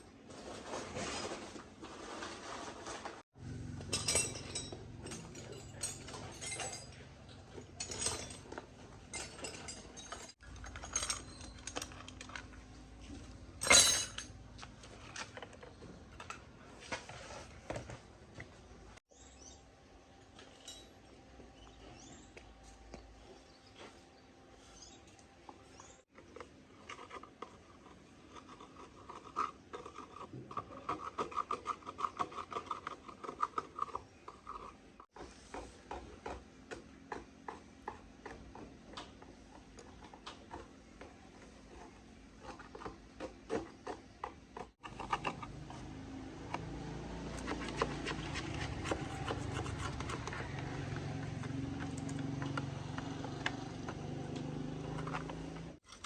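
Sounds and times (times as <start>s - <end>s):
metal hand tools clinking: 3.9s - 12.2s, 13.6s - 14.3s.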